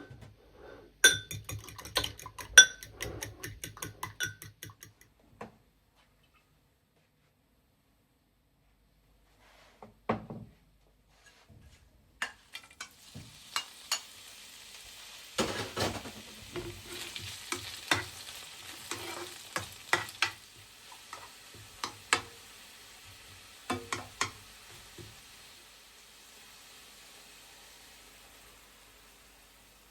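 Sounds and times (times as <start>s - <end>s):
food sizzling in a pan: 12.3s - 29.9s.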